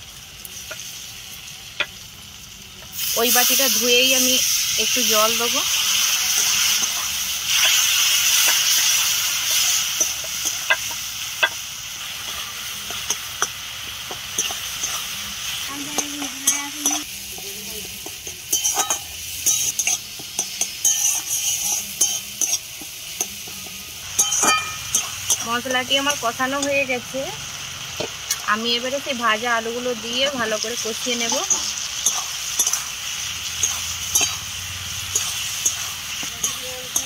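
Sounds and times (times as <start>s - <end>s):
masala sizzling in oil: 0.0s - 37.0s
spatula clinking against pan: 18.0s - 25.5s
metal spatula scraping pan: 18.5s - 22.6s, 31.5s - 37.0s.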